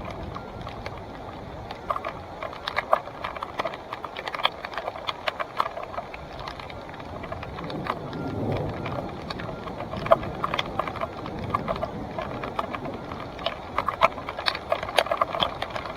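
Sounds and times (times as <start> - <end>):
bike rattling clicks and knocks: 0.0 - 15.9
rush of riding noise: 0.0 - 15.9.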